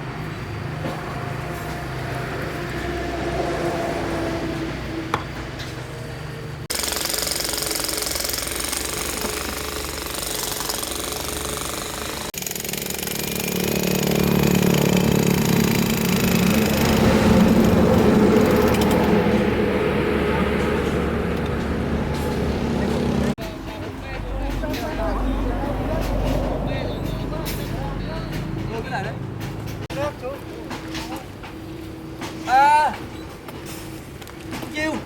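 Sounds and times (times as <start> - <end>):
machinery running: 5.8 - 32.4.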